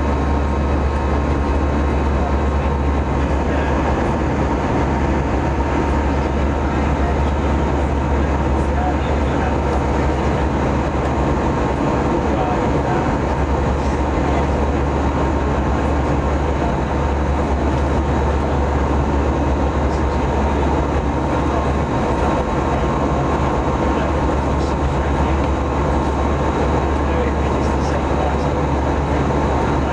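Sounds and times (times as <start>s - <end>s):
rushing air: 0.0s - 16.3s
deep steady hum: 0.0s - 29.9s
jet engine drone: 0.0s - 29.9s.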